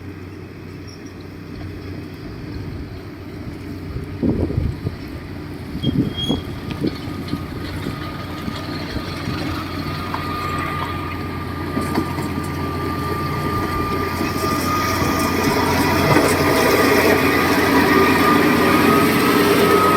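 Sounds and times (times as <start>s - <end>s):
heavy diesel machine running: 0.0s - 19.9s
high whine: 10.0s - 19.9s.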